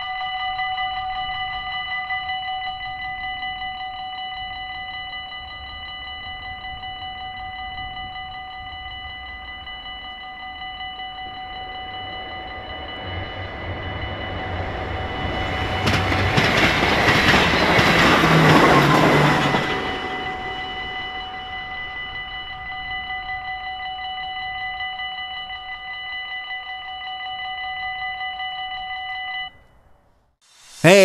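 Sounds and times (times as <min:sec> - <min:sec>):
passenger train passing: 0:07.4 - 0:23.8.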